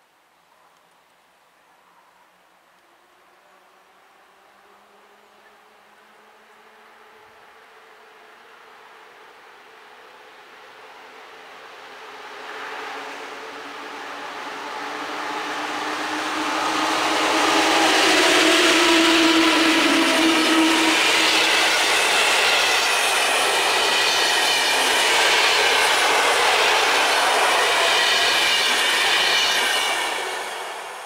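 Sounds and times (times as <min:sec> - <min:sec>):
locomotive humming whine: 0:12.9 - 0:31.0.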